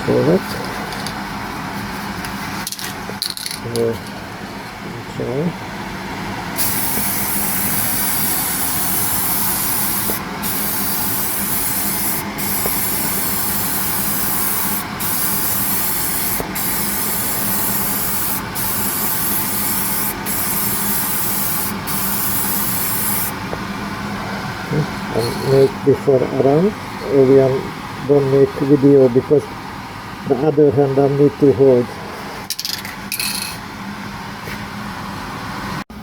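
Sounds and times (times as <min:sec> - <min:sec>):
spray gun hissing: 0:06.6 - 0:23.4.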